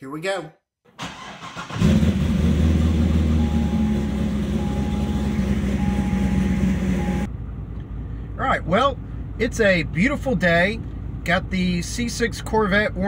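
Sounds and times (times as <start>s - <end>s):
car engine idling: 1.0s - 11.3s.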